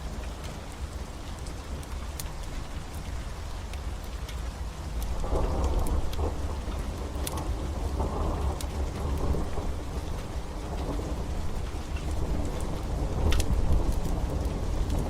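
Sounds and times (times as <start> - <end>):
steady rain: 0.0 - 15.0
wood fire crackling: 0.0 - 15.0
thunder rumbling: 5.1 - 15.0.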